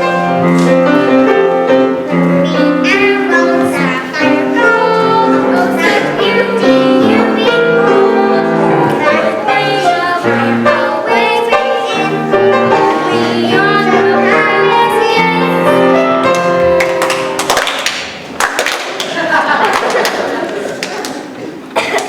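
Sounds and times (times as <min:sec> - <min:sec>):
piano accompaniment: 0:00.0 - 0:19.0
young voices singing: 0:01.6 - 0:16.6.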